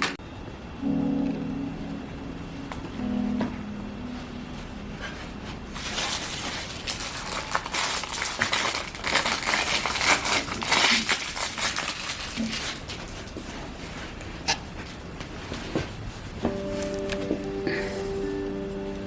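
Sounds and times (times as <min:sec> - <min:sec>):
crinkling and rustling: 0:04.6 - 0:19.0.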